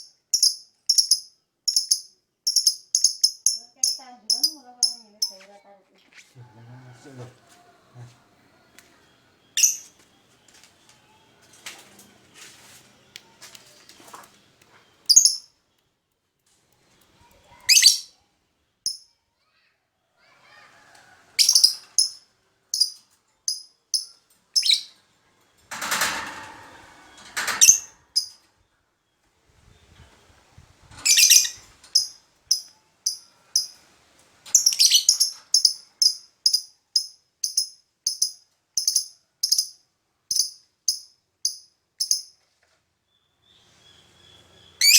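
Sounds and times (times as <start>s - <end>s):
bird chirping: 0.0s - 5.7s, 7.9s - 11.4s, 13.1s - 15.9s, 21.4s - 25.0s, 31.0s - 33.8s, 34.5s - 42.4s, 43.1s - 44.9s.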